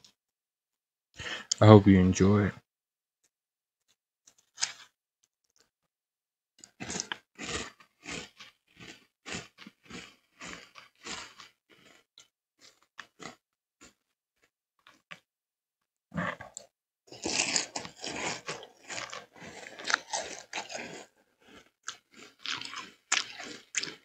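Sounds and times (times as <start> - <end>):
chewing crunchy cereal: 6.6 - 14.1, 14.8 - 15.2, 16.2 - 24.0.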